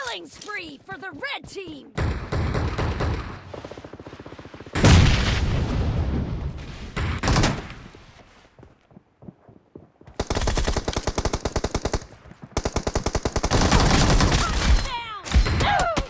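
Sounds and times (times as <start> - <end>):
video game automatic gunfire: 10.2 - 14.9.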